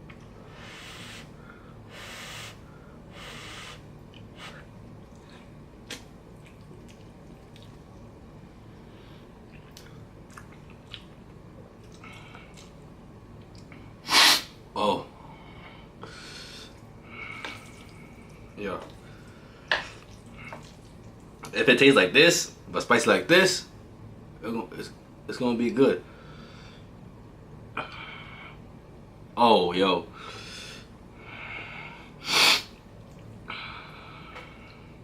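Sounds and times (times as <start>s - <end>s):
sharp burst of breath: 0.4s - 4.6s, 14.0s - 14.6s, 31.5s - 32.8s
man breathing noisily: 0.4s - 4.7s, 15.2s - 18.2s, 30.2s - 32.7s, 33.4s - 35.0s.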